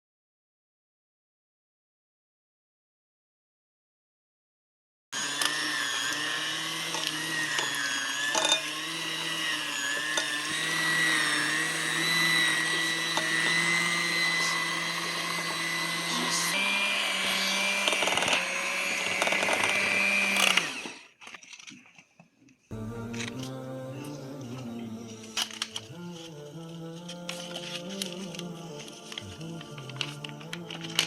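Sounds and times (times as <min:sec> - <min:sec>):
appliance motor whining: 0:05.2 - 0:21.6, 0:22.7 - 0:31.0.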